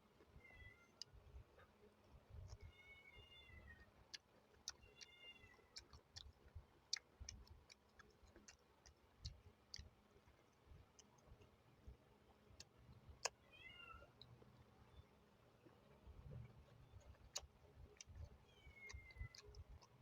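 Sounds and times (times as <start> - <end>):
chewing clicks and crunches: 0.9 - 2.8, 3.7 - 11.6, 12.3 - 13.4, 15.6 - 20.0.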